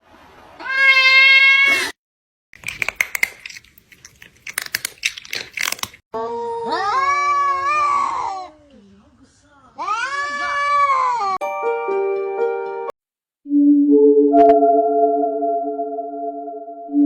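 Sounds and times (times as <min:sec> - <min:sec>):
cat meowing: 0:00.6 - 0:01.9
crunching clicks of chewing: 0:02.6 - 0:06.0.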